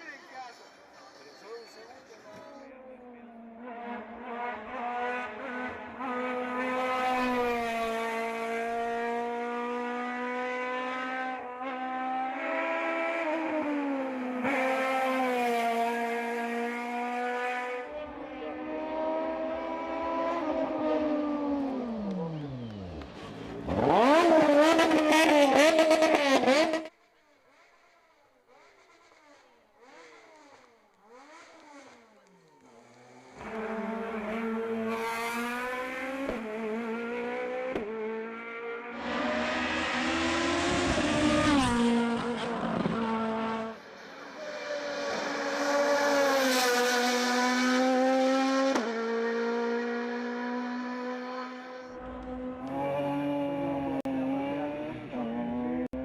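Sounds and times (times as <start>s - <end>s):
distant car revving: 0.0s - 56.0s
race car engines revving: 0.0s - 56.0s.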